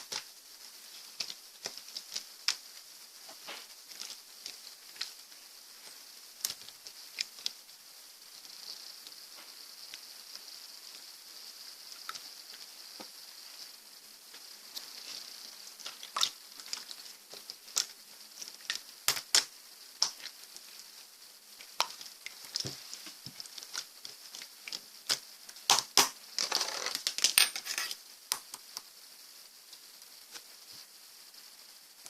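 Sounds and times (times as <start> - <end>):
slime crackling: 0.0 - 7.6, 14.3 - 27.3.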